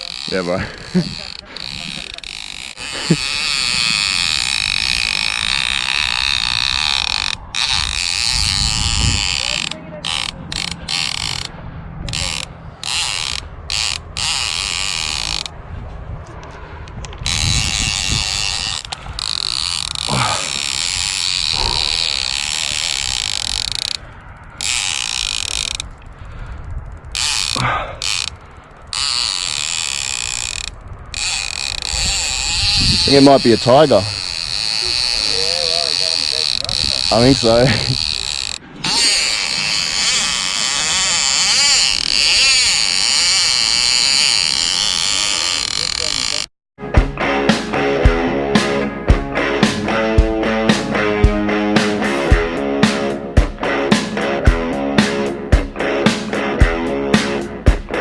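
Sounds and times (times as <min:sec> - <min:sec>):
fishing reel drag buzzing: 0:00.0 - 0:15.6, 0:17.1 - 0:46.5, 0:48.6 - 0:58.0.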